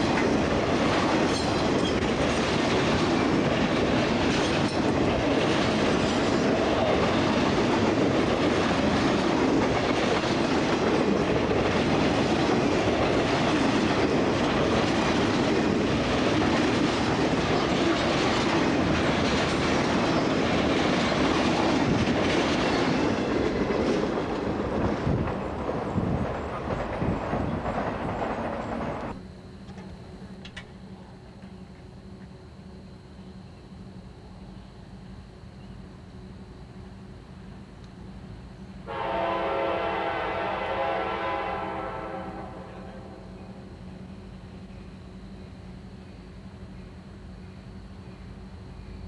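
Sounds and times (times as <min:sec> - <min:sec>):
train wheels clacking on rails: 0:00.0 - 0:30.8.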